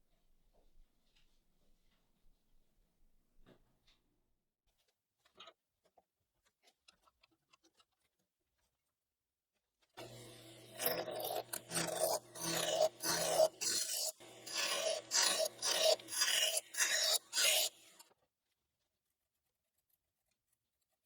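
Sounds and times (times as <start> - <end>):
lathe motor hum: 10.0 - 17.9
tool scraping spinning wood: 10.0 - 18.0.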